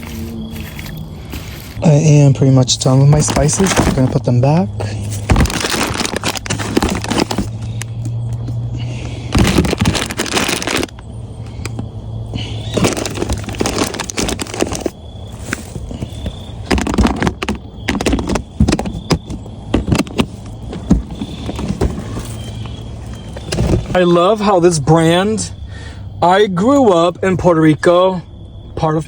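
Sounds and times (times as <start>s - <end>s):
low steady hum: 0.0s - 29.0s
jars and bottles clattering: 2.8s - 11.0s, 12.4s - 24.0s.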